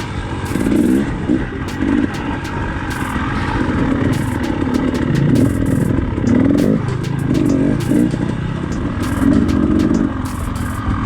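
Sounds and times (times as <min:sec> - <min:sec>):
dirt bike engine revving: 0:00.0 - 0:11.0
knocks and clatter: 0:04.1 - 0:10.9.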